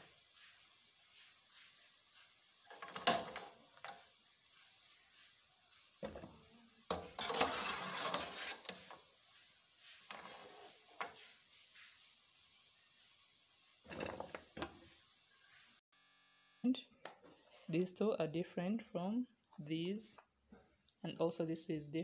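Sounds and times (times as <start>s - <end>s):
dough sizzling in hot oil: 0.0s - 16.6s
metal spatula scraping pot: 6.0s - 9.0s, 10.0s - 11.2s.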